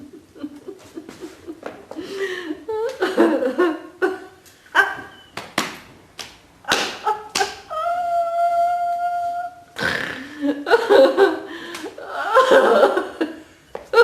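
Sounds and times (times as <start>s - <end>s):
group laughing: 0.0s - 5.3s, 10.3s - 13.4s.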